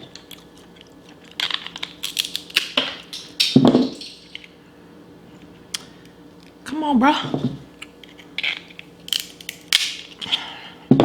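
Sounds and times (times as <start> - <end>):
crab shell cracking: 0.1 - 4.5, 7.8 - 10.2.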